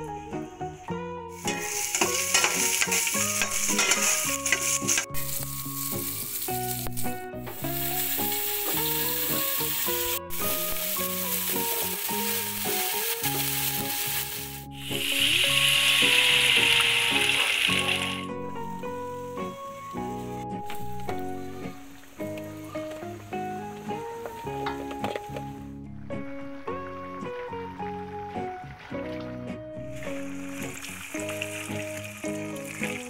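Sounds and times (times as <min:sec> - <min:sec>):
background music: 0:00.0 - 0:33.0
liquid pouring hiss: 0:01.4 - 0:18.3, 0:29.9 - 0:33.0
food sizzling in hot oil: 0:01.4 - 0:19.5, 0:29.9 - 0:33.0.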